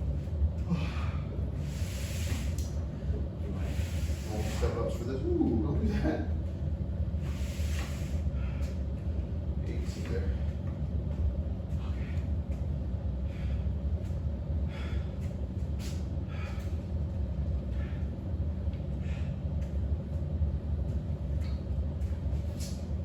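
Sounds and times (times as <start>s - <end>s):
steady low rumble: 0.0s - 23.0s
man breathing hard: 0.6s - 5.0s, 7.2s - 8.8s, 11.7s - 19.7s.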